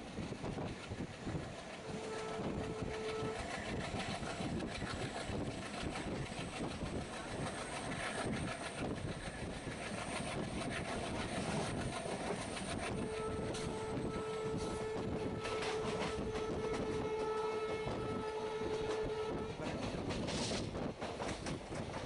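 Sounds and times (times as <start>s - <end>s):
train rumble and rattle: 0.0s - 22.0s.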